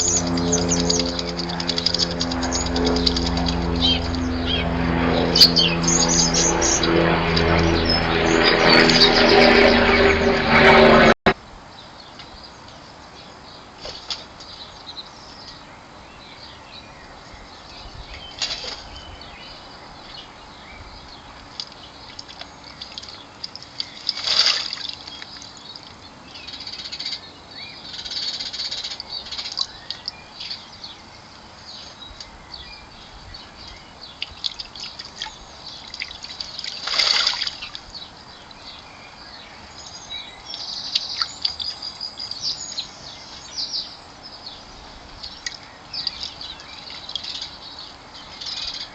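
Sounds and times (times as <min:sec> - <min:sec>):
birds splashing water: 0:00.0 - 0:10.0, 0:21.4 - 0:26.2, 0:28.4 - 0:30.5, 0:33.6 - 0:38.6, 0:40.4 - 0:42.0, 0:45.3 - 0:48.7
wings fluttering: 0:00.0 - 0:11.1.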